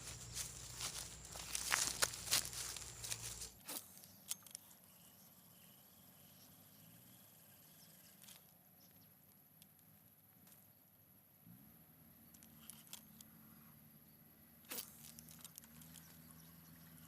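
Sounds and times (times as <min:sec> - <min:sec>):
faint insect buzz: 0:00.0 - 0:03.8
rustling handling noise: 0:00.0 - 0:04.0.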